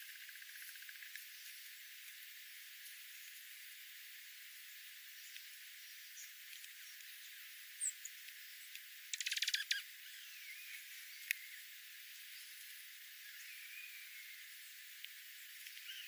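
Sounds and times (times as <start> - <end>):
steady hiss: 0.0 - 16.0
dry rattling bird chatter: 9.1 - 9.8
wild birds calling: 9.1 - 11.6, 15.7 - 16.0.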